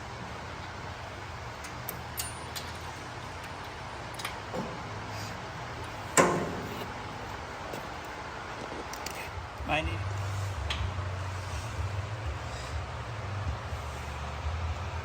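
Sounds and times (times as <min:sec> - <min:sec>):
steady low hum: 0:00.0 - 0:15.0
metal parts clicking and clanking: 0:01.6 - 0:04.8.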